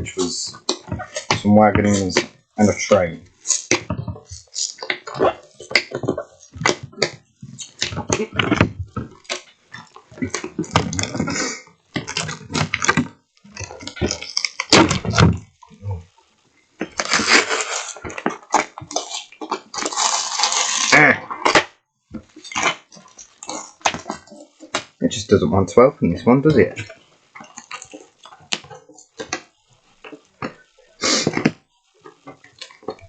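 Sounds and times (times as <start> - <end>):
packing tape crackling and rustling: 0.6 - 15.6, 16.8 - 21.6
cardboard tearing: 17.0 - 21.6.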